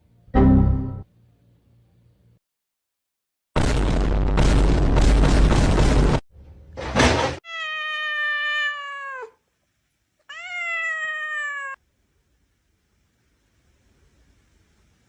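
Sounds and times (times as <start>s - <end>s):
cat meowing: 7.4s - 9.4s, 10.3s - 11.8s.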